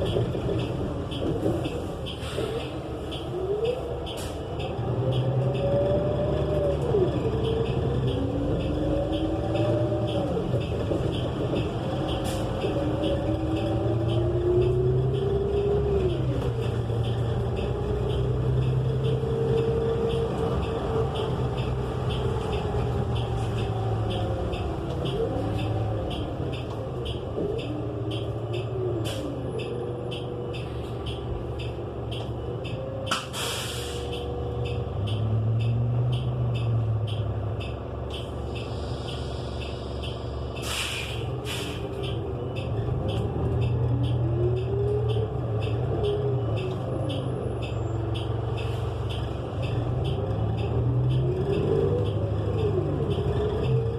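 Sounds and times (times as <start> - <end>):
bus engine running: 0.0 - 53.9
air hiss: 40.6 - 41.8.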